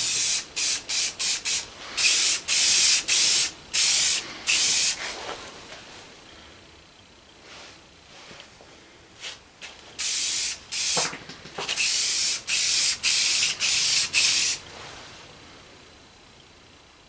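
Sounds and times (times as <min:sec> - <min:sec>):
aerosol spray can hissing: 0:00.0 - 0:05.1, 0:10.0 - 0:14.6.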